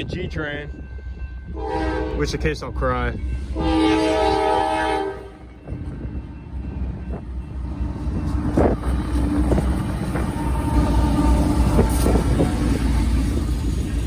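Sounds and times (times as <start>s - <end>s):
diesel locomotives rumbling past: 0.0s - 14.0s
train clanks and knocks: 5.4s - 14.0s.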